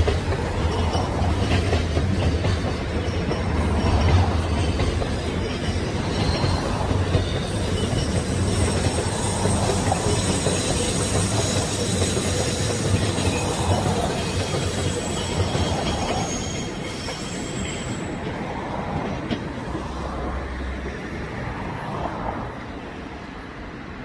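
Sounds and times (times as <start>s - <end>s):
train wheels rumbling on rails: 0.0s - 24.0s
faint high wheel squeal: 2.8s - 18.2s.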